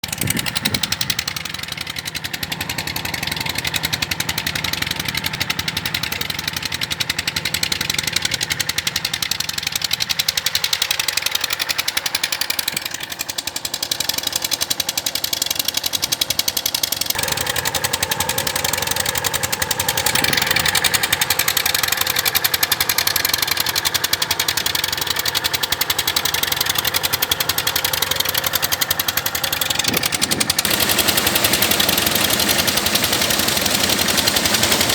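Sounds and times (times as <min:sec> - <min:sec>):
engine running with knocking beat: 0:00.0 - 0:34.9.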